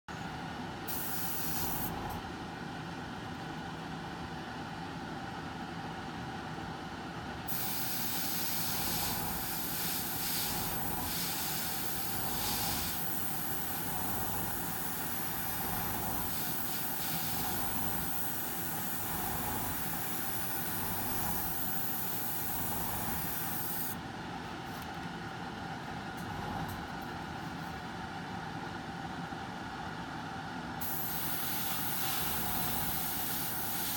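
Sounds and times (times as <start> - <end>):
steady low hum: 0.1 - 33.9
airbrush hissing: 0.9 - 1.9, 7.5 - 24.0, 30.8 - 33.9.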